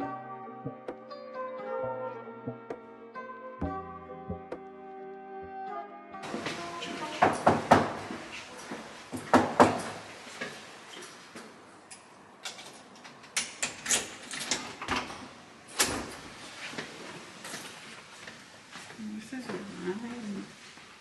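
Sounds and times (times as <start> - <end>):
sharp knocks and clacks: 9.1 - 10.0.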